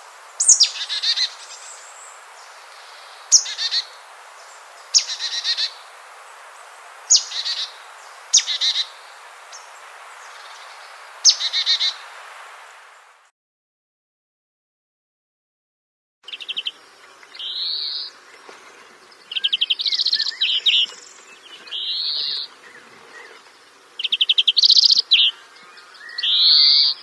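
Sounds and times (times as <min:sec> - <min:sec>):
faint steady hiss: 0:00.0 - 0:13.3, 0:16.3 - 0:27.0
bird whistling and chirping: 0:07.1 - 0:07.7, 0:19.3 - 0:23.4, 0:24.0 - 0:27.0.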